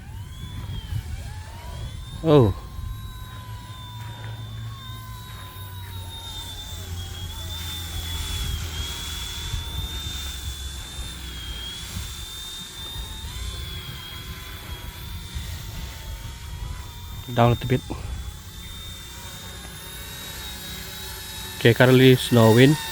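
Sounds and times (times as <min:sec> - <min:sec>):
wind rumble on microphone: 0:00.0 - 0:04.1, 0:04.8 - 0:18.9
rc helicopter motor whine: 0:00.0 - 0:22.9.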